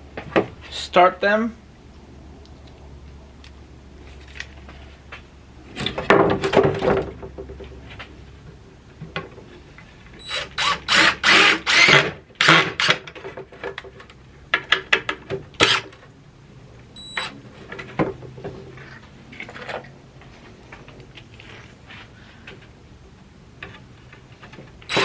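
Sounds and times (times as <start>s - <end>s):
power drill driving screws into wood: 10.2s - 13.0s, 15.6s - 15.9s.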